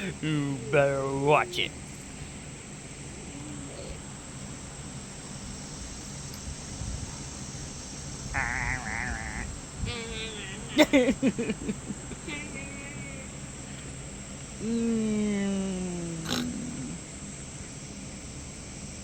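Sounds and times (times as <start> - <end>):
voices: 0.0 - 17.9
crickets chirring: 0.0 - 19.0
wavering bleat-like call: 8.3 - 11.0.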